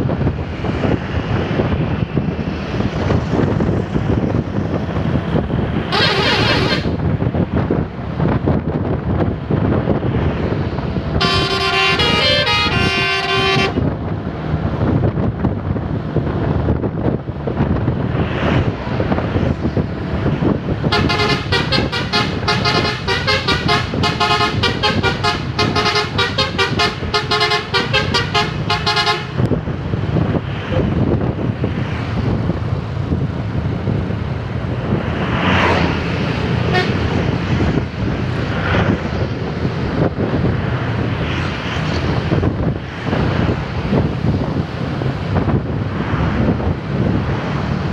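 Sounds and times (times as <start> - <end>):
vehicle running noise: 0.0 - 47.9
bus musical horn melody: 5.8 - 7.0, 11.1 - 13.9, 20.8 - 29.5, 36.7 - 37.2.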